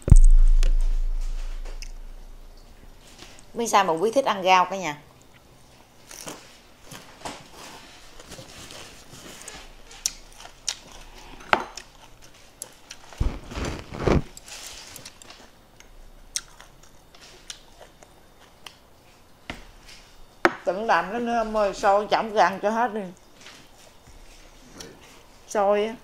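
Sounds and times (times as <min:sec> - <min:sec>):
low thump: 0:00.0 - 0:02.6
close chewing and eating: 0:05.1 - 0:20.4.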